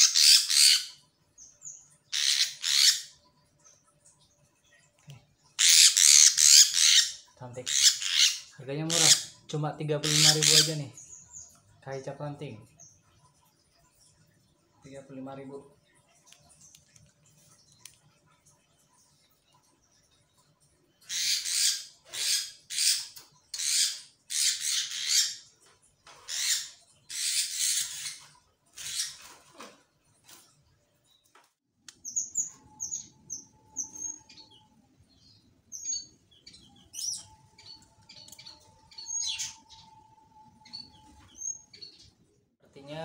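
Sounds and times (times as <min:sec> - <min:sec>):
bird harsh rasping calls: 0:00.0 - 0:01.0, 0:02.1 - 0:03.2, 0:05.6 - 0:11.2, 0:21.0 - 0:25.4, 0:26.2 - 0:29.3, 0:35.2 - 0:39.9
bird high chirps: 0:32.0 - 0:42.2.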